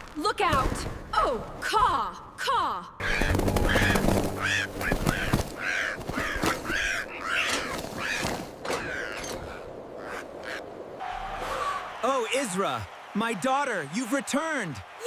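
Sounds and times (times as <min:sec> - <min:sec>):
crows cawing: 0:03.0 - 0:11.9.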